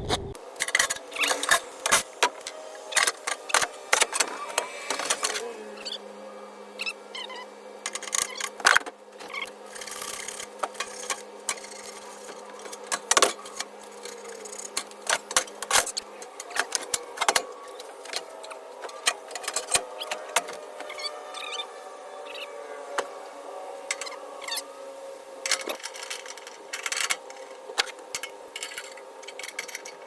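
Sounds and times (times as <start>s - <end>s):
hand tools clicking and rattling: 25.4s - 30.0s.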